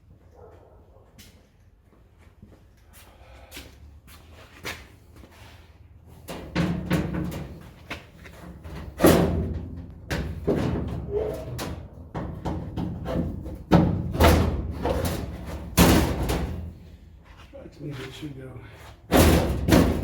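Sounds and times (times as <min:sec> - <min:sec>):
knocks and thumps on sheet metal: 0:06.3 - 0:16.8, 0:19.1 - 0:20.0
loud sharp metal bangs: 0:08.9 - 0:16.8, 0:19.1 - 0:20.0.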